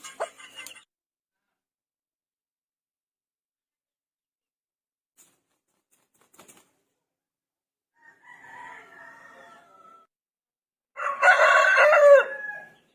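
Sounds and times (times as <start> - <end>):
rooster crowing: 8.0 - 10.1, 11.0 - 12.8.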